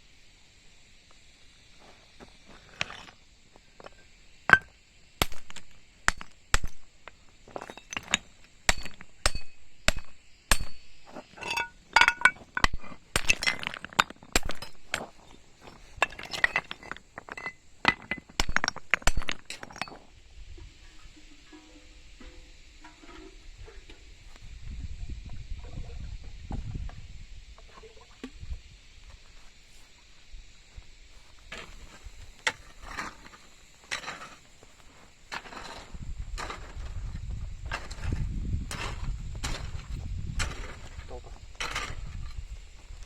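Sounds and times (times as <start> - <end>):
hard objects clinking and knocking: 4.5 - 20.0.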